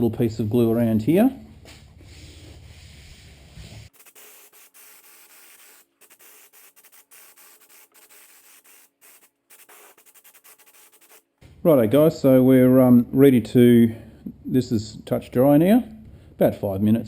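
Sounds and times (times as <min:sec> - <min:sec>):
hand rubbing on work surface: 0:01.7 - 0:11.2.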